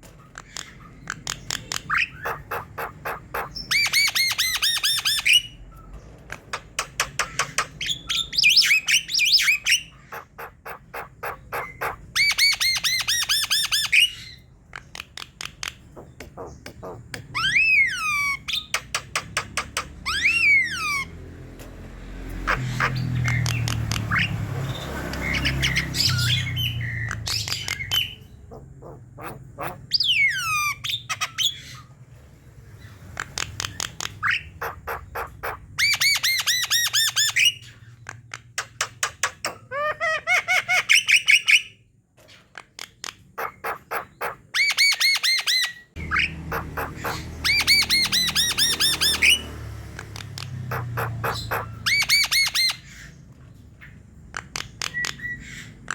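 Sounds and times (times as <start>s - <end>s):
bird singing squawky notes: 0.2s - 21.2s, 22.4s - 31.9s, 43.4s - 55.9s.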